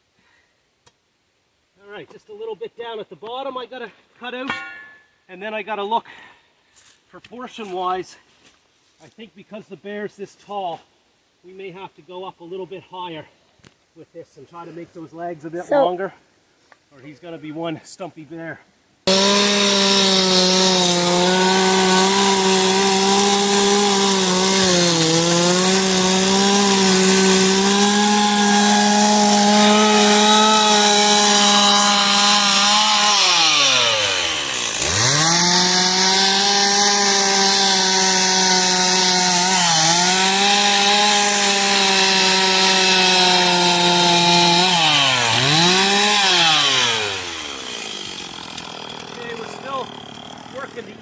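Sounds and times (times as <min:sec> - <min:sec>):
chainsaw cutting wood: 0:19.0 - 0:51.0.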